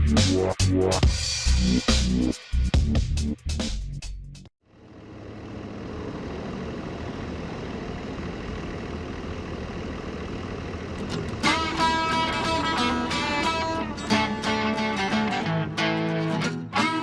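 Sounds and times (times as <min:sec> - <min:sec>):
music: 0:00.0 - 0:04.5, 0:11.4 - 0:17.0
diesel engine idling: 0:04.6 - 0:15.3.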